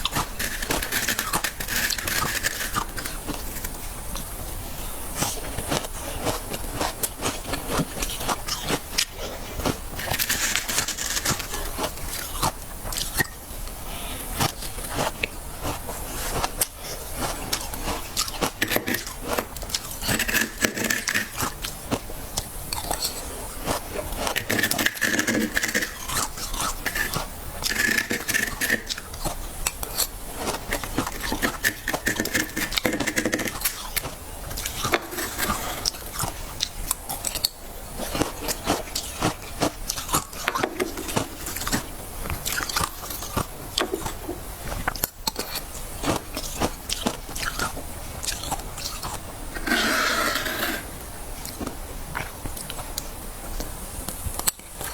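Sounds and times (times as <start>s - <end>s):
frost being scraped: 0.0s - 13.2s, 13.8s - 22.0s, 22.9s - 36.6s, 49.5s - 51.0s
crunching while eating: 0.0s - 54.9s.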